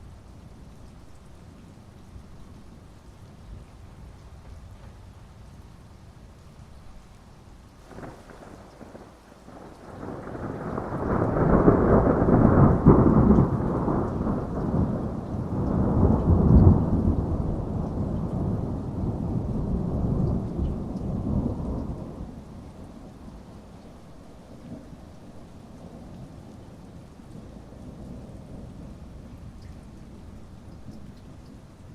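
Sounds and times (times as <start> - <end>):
steady rain: 0.0 - 31.9
rolling thunder: 7.9 - 23.2.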